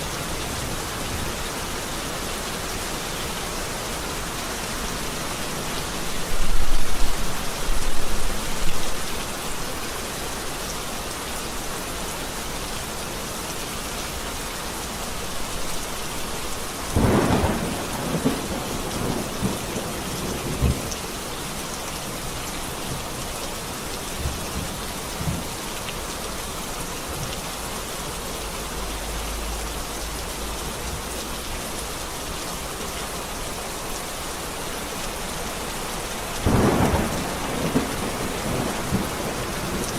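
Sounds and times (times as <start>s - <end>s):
heavy rain: 0.0s - 39.9s
thunderclap: 17.0s - 20.9s, 36.4s - 39.9s
thunder rumbling: 17.0s - 21.0s, 36.4s - 39.9s.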